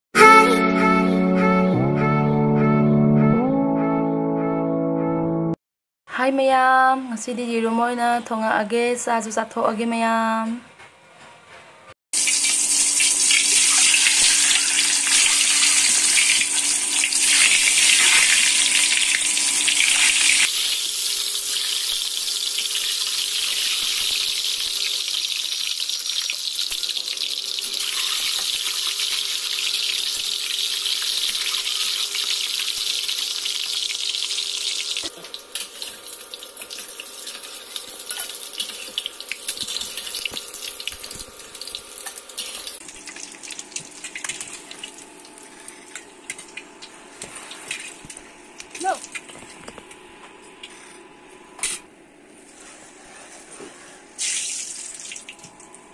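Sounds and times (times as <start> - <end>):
hot oil sizzling: 12.2 - 46.7.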